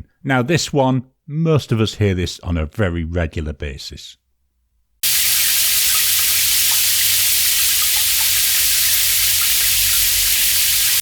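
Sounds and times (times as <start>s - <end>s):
shower water spraying: 5.0s - 11.0s.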